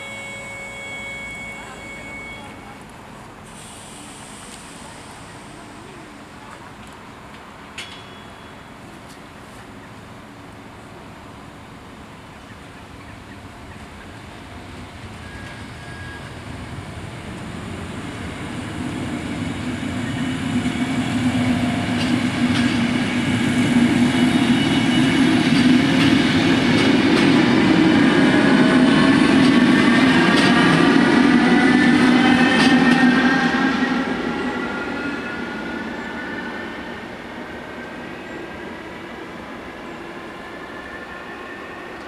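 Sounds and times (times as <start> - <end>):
whine of steady tones: 0.0 - 3.4, 11.4 - 42.0
electric train passing: 0.0 - 6.4, 7.0 - 42.0.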